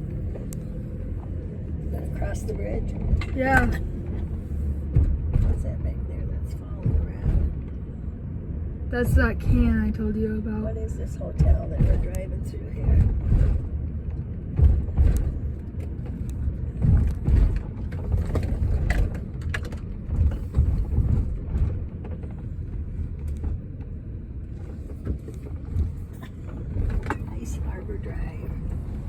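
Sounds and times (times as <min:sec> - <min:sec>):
car road and engine rumble: 0:00.0 - 0:29.0.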